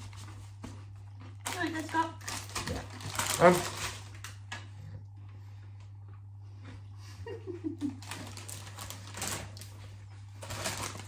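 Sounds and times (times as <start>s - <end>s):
low electrical hum: 0.0s - 11.0s
chewing crunchy snacks: 0.7s - 4.4s, 7.9s - 9.7s.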